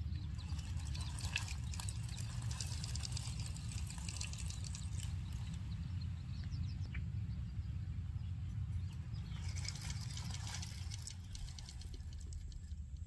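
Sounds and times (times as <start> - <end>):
marbles rolling on wooden run: 9.5 - 13.0.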